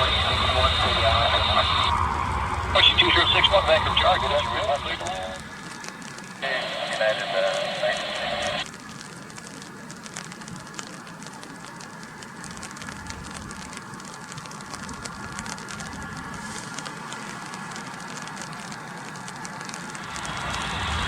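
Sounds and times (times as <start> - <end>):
faint low rumble: 0.0 - 8.6, 19.6 - 21.0
steady rain falling: 0.0 - 21.0.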